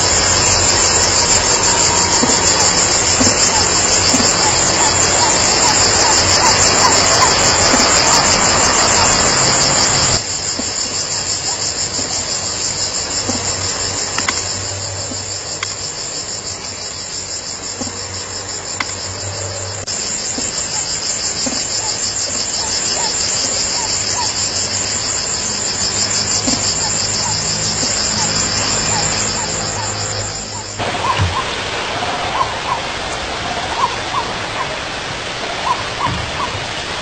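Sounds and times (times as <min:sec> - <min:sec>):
loud rushing noise: 0:00.0 - 0:10.9
insects trilling: 0:00.0 - 0:31.5.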